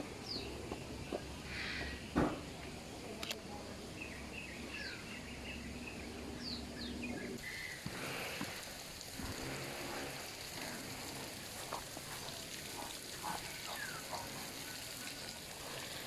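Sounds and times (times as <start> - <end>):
birds chirping: 0.0 - 8.3, 12.2 - 15.8.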